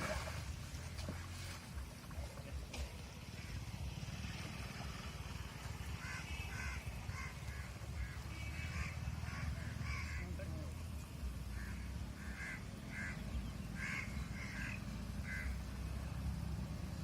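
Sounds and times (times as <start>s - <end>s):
crows cawing: 5.9s - 10.3s, 11.5s - 13.2s, 13.8s - 15.6s.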